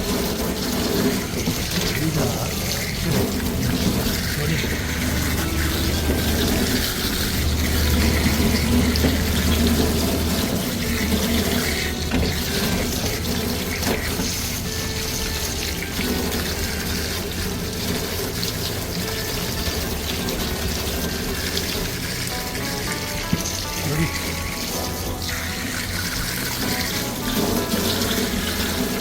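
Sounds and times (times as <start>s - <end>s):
water running from a tap: 0.0s - 29.0s
water splashing: 0.0s - 29.0s
low rumble: 0.1s - 18.9s.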